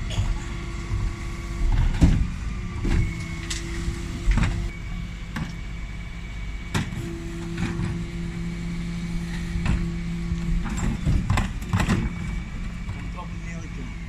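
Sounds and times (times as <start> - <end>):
clunks and knocks: 0.0 - 4.7, 6.7 - 8.2, 9.4 - 14.0
bin lorry hum: 0.0 - 14.0.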